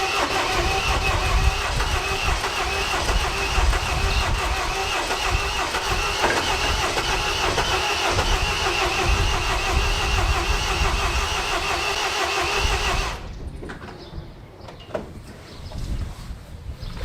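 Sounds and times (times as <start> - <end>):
starter motor cranking engine: 0.0 - 13.4.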